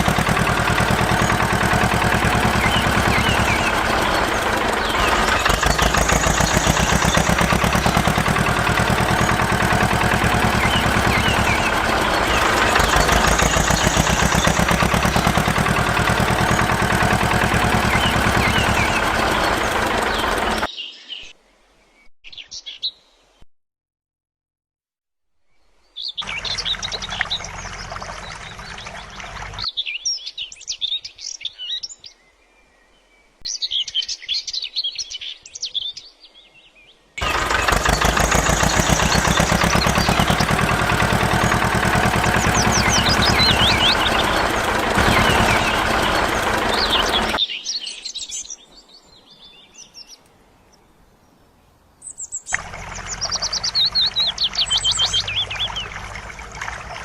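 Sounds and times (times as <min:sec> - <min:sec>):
small birds chirping: 0:00.0 - 0:21.3, 0:25.8 - 0:57.0
loud rushing noise: 0:37.2 - 0:47.4.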